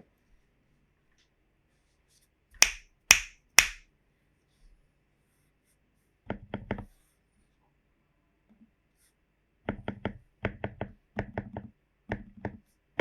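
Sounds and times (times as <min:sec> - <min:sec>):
sharp snaps: 0:02.6 - 0:03.8.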